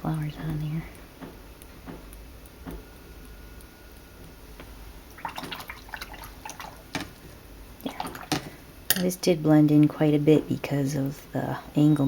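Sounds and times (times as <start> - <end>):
brush clicks and watery ticks: 5.1 - 7.2, 7.8 - 8.5.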